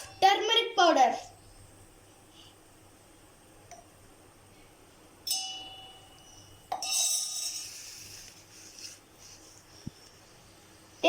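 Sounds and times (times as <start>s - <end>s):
spoon clinking against dish: 5.3s - 7.8s.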